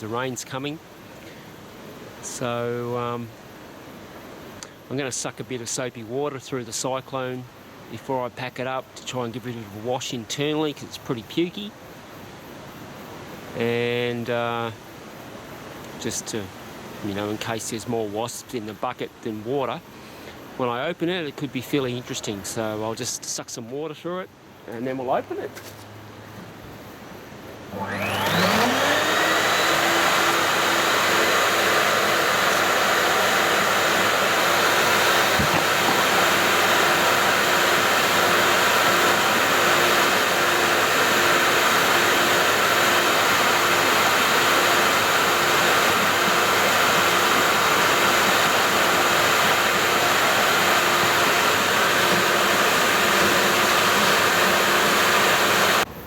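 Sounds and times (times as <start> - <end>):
vacuum cleaner motor whining: 27.7 - 55.9.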